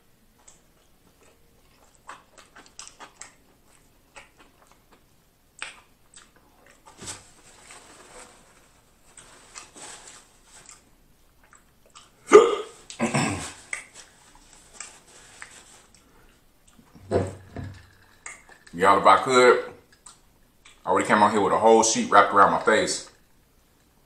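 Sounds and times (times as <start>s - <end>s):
chewing sandwich: 0.3s - 7.9s, 8.6s - 17.0s, 17.7s - 18.8s, 19.8s - 20.9s
wet clicks and lip smacks: 0.4s - 6.9s, 11.4s - 12.2s, 13.7s - 14.0s, 18.2s - 18.8s, 19.9s - 20.8s.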